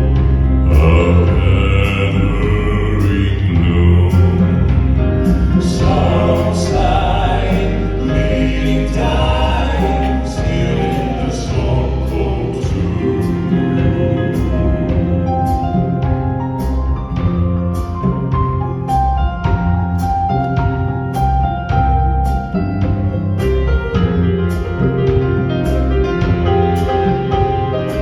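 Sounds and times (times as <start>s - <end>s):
band accompaniment: 0.0s - 28.0s
bass line: 0.0s - 28.0s
percussion strikes: 0.0s - 28.0s
male vocal group singing: 0.4s - 16.3s.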